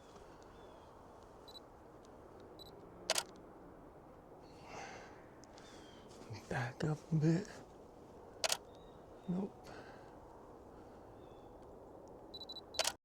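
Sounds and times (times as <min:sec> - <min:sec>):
camera shutter firing: 0:03.1 - 0:03.3, 0:08.4 - 0:08.6, 0:12.5 - 0:13.0.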